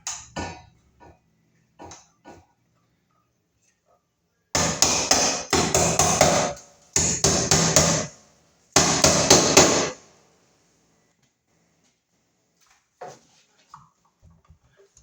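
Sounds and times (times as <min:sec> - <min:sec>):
hammer striking: 0:04.6 - 0:08.2, 0:08.8 - 0:10.1.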